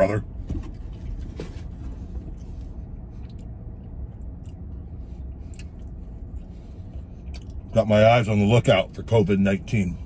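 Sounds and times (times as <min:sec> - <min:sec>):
steady low rumble: 0:00.0 - 0:10.0
man chewing with mouth closed: 0:02.1 - 0:07.7.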